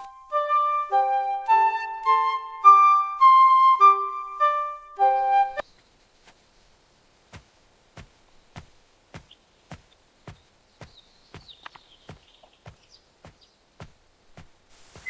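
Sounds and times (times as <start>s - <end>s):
flute melody: 0.0s - 5.6s
birds chirping: 5.5s - 15.0s.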